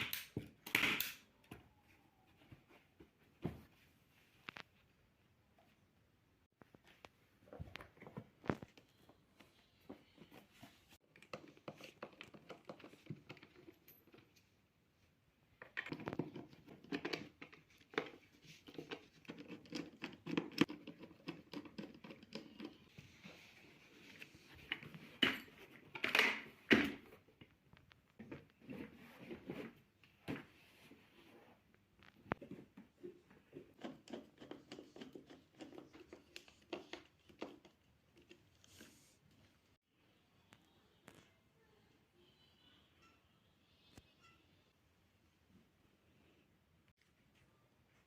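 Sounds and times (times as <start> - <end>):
rustling and crinkling: 1.8 - 14.6.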